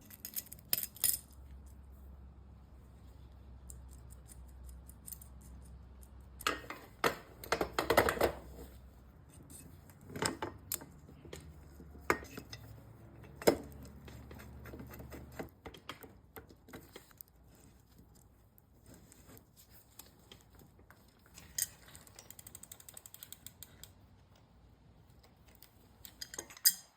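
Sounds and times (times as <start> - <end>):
metal parts clinking and knocking: 0.0 - 1.4, 21.3 - 23.9, 25.4 - 26.9
low steady hum: 0.0 - 26.9.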